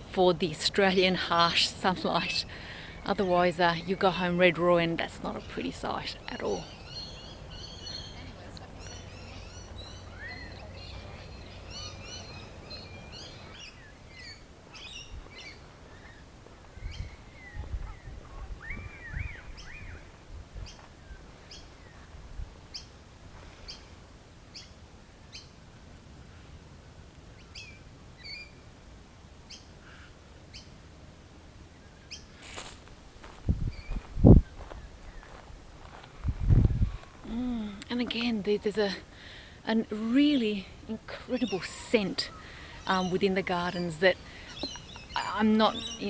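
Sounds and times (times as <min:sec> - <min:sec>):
birds twittering and chirping: 0:00.6 - 0:23.0, 0:27.4 - 0:28.6, 0:33.6 - 0:35.4, 0:37.9 - 0:46.0.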